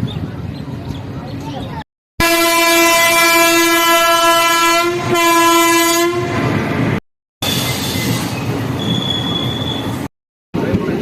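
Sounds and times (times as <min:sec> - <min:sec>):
train horn: 0:02.2 - 0:06.5
train running rumble: 0:03.7 - 0:11.0.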